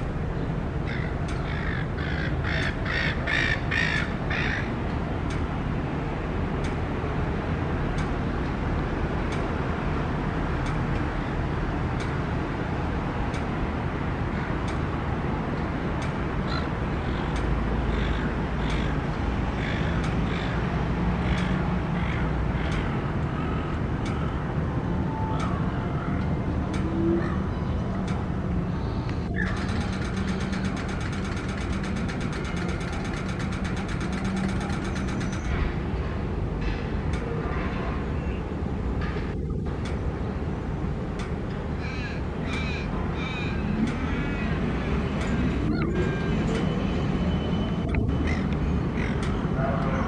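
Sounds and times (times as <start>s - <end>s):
traffic hum: 0.0s - 50.0s
gull harsh calls: 0.9s - 4.7s.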